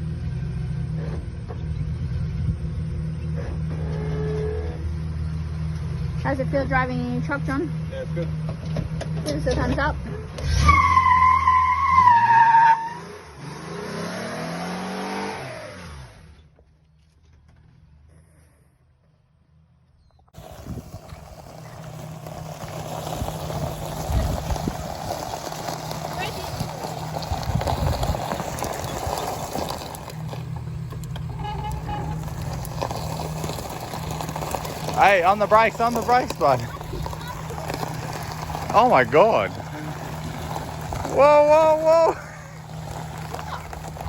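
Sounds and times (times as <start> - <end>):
low motor hum: 0.0 - 10.4, 20.4 - 44.0
tyre squeal: 3.2 - 5.0, 10.4 - 13.3, 20.0 - 44.0
truck driving past: 17.6 - 44.0
rough rolling noise: 20.3 - 44.0.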